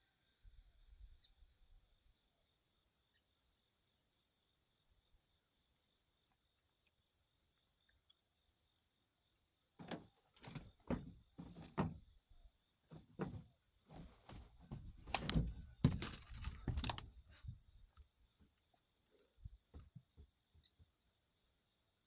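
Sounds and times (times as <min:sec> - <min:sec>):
irregular knocks and thumps: 0:09.8 - 0:12.2, 0:12.9 - 0:17.6, 0:19.7 - 0:20.4
rustling: 0:09.8 - 0:12.2, 0:12.9 - 0:17.9.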